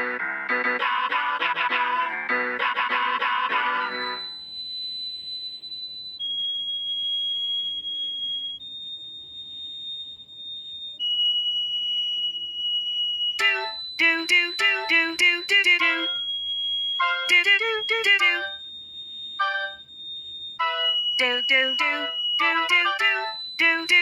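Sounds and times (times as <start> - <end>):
long high-pitched tones: 13.4 - 18.6, 19.4 - 19.8, 20.6 - 24.0.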